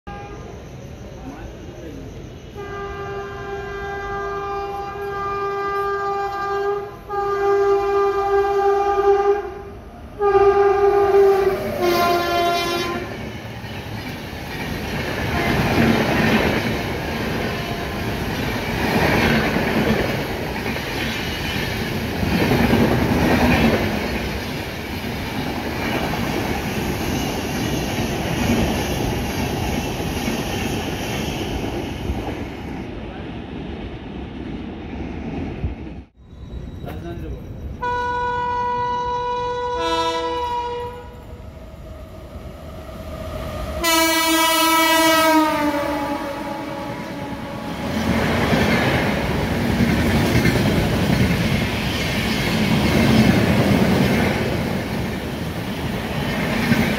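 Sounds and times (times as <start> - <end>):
locomotive horn blasts: 0.1 - 0.6, 2.6 - 13.2, 15.3 - 15.8, 37.8 - 41.2, 43.8 - 47.9
train wheels rumbling on rail: 0.1 - 56.9.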